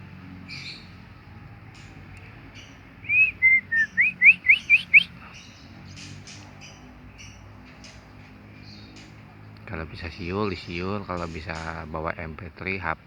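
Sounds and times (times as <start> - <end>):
faint high bird chirps: 2.6 - 8.0
loud whistled notes: 3.1 - 5.1.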